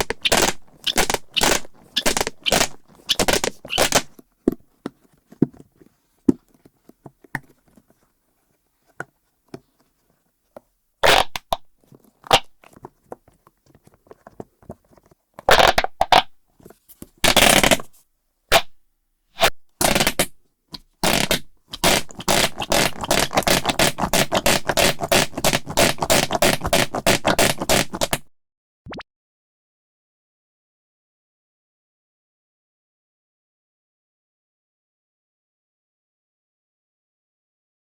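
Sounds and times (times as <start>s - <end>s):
fidget toy popping: 0.0s - 4.1s, 15.5s - 16.3s, 21.0s - 28.2s.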